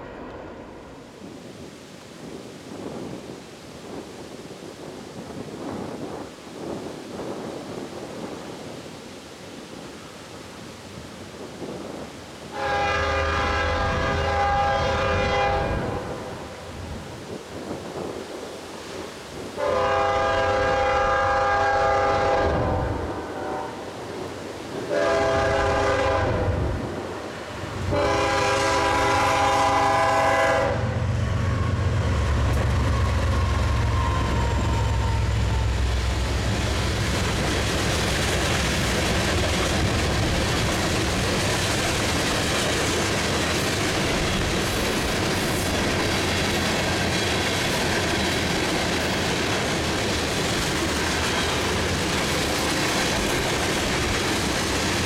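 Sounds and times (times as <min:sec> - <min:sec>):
locomotive horn blasts: 0:12.5 - 0:16.2, 0:19.6 - 0:23.9, 0:24.9 - 0:26.6, 0:27.8 - 0:31.0
locomotive engine rumble: 0:24.9 - 0:55.0
train cars rolling clickety-clack: 0:31.2 - 0:55.0.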